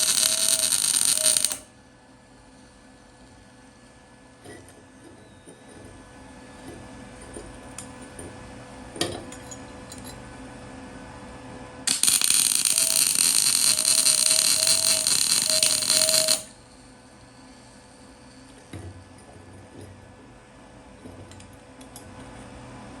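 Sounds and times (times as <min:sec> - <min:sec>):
welder arc crackling: 0:00.0 - 0:01.6, 0:11.9 - 0:16.6.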